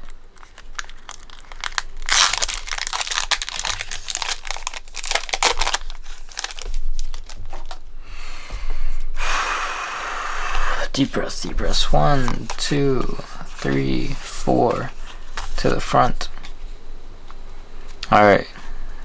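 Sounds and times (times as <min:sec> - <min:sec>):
foil wrapper crinkling and tearing: 0:00.0 - 0:07.9, 0:10.8 - 0:16.6.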